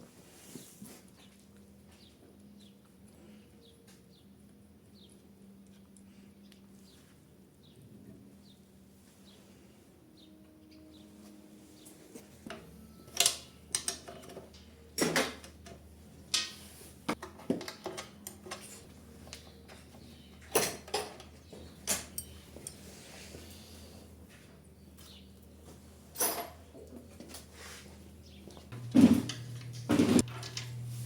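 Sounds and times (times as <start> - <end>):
metal tools clinking: 12.6 - 23.8, 26.1 - 26.6
faint steady hum: 28.0 - 31.0.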